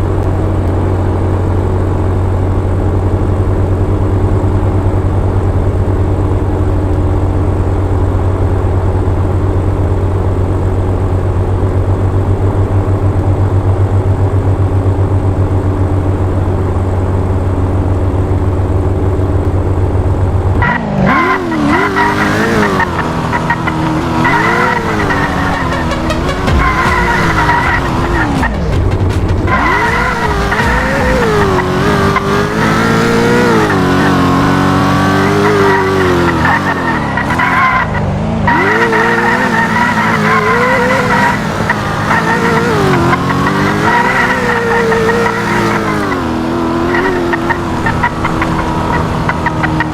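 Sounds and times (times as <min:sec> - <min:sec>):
car engine idling and revving: 0:00.0 - 0:49.9
tyres squealing: 0:35.0 - 0:49.9.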